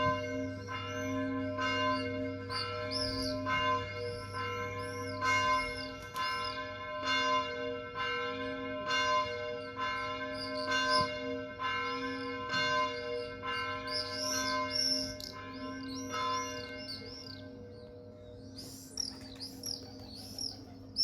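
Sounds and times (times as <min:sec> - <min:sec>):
church bell tolling: 0:00.0 - 0:18.4
birds chirping: 0:02.0 - 0:03.4, 0:11.9 - 0:21.0.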